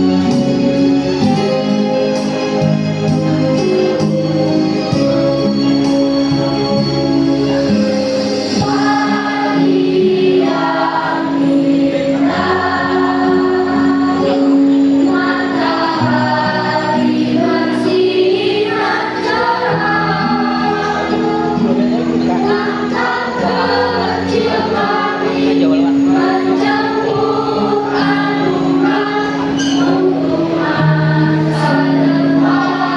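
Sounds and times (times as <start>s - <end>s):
low instrumental accompaniment: 0.0s - 32.9s
choir singing: 8.4s - 32.9s.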